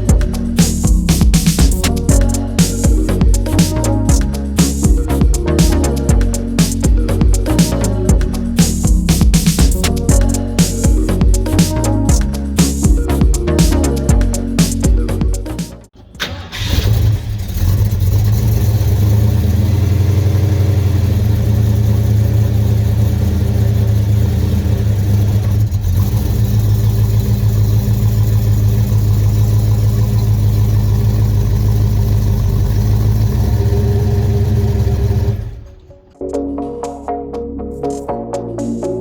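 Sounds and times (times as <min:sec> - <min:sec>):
motor running with pulsing rumble: 0:00.0 - 0:15.5.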